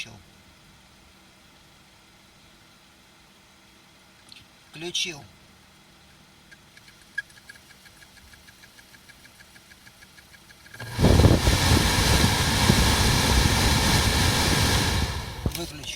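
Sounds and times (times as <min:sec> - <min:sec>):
faint fast ticking: 0:06.5 - 0:10.9
blower fan rushing air: 0:10.6 - 0:15.9.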